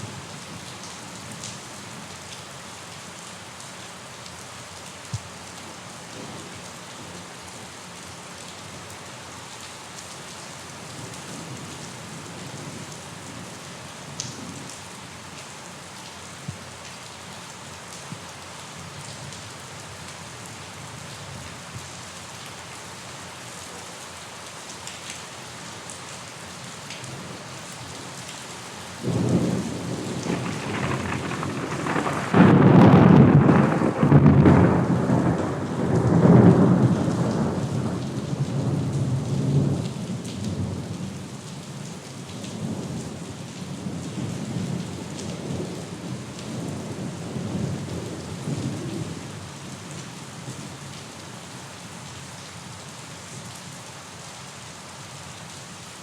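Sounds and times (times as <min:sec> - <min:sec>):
steady rainfall: 0:00.0 - 0:56.0
low rumble of thunder: 0:29.0 - 0:41.3, 0:42.5 - 0:50.6.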